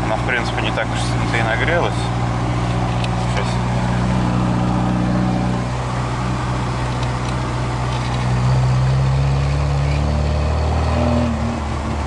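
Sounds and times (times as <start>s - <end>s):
car engine from inside cabin: 0.0s - 12.0s.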